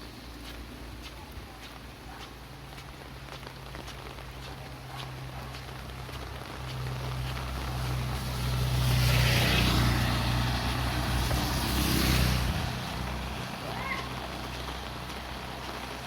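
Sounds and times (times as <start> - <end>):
vehicle engine hum: 0.0 - 16.0
tyre hiss of passing vehicle: 6.7 - 16.0.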